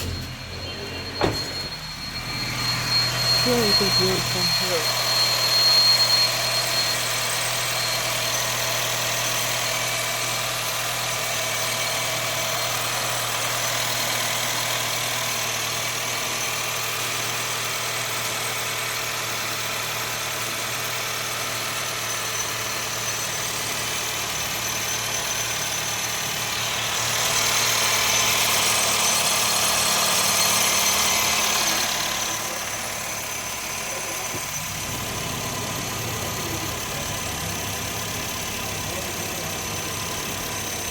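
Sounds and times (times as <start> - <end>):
high-pitched whistle: 0.0 - 9.4
car engine idling: 0.0 - 40.9.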